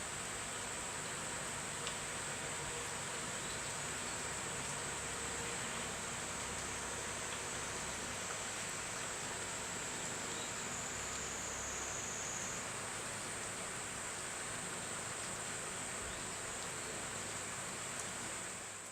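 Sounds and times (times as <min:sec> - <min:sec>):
insects droning: 0:06.8 - 0:16.3.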